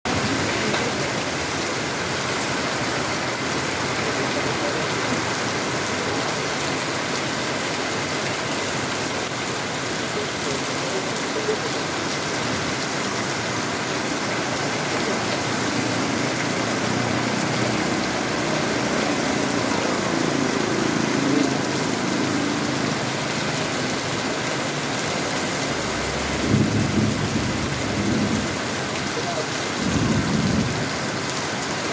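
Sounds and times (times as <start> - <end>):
heavy rain pouring: 0.1 - 31.9
low rumbling: 24.7 - 29.1.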